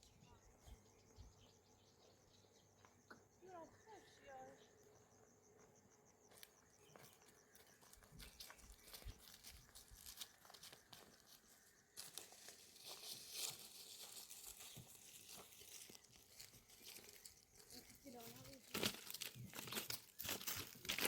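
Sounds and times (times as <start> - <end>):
crinkling and rustling: 12.0 - 21.0.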